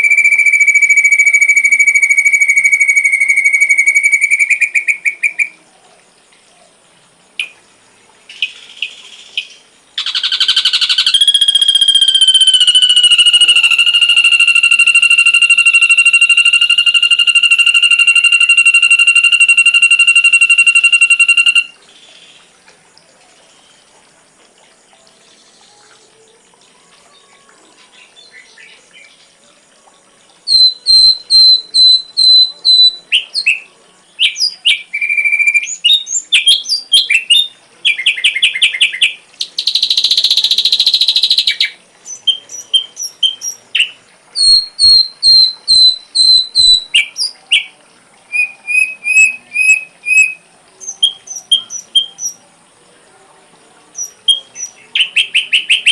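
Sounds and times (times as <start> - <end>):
bird singing whistled notes and trills: 0.0 - 5.6, 8.3 - 22.4, 30.4 - 52.5, 53.9 - 55.9
harsh buzzy bird call: 10.0 - 21.8, 30.5 - 33.6, 48.3 - 52.4
faint high whine: 11.1 - 21.8.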